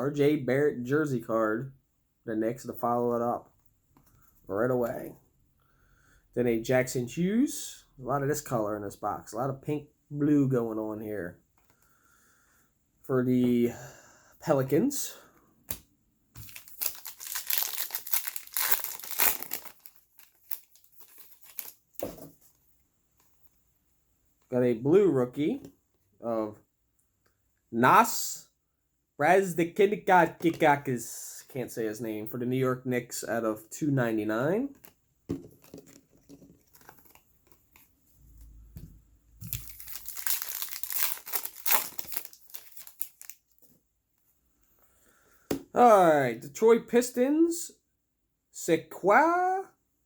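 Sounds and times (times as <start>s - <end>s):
wrapper crinkling and tearing: 16.4s - 22.2s, 35.6s - 37.9s, 39.4s - 43.6s.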